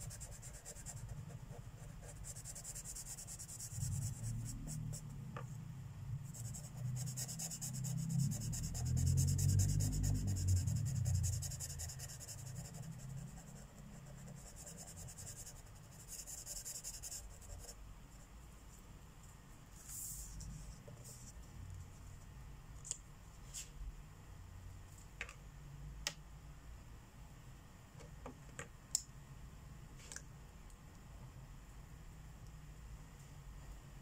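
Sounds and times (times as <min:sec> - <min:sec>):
marker scratching on paper: 0:06.3 - 0:17.8.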